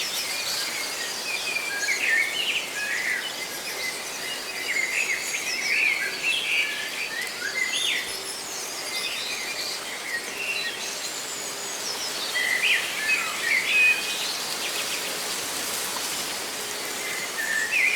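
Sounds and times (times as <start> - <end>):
leaves rustling: 14.0 - 17.9.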